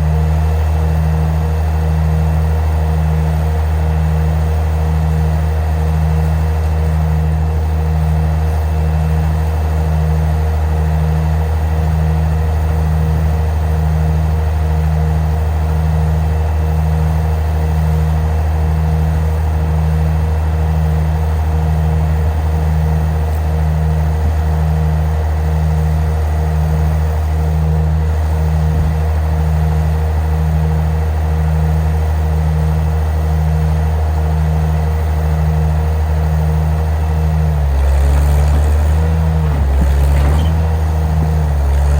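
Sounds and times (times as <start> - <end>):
vehicle engine droning: 0.0 - 41.9.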